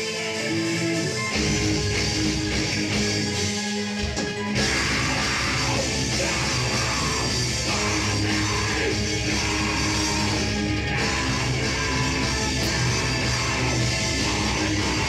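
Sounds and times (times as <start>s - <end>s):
heavy metal band playing live: 0.0s - 15.0s.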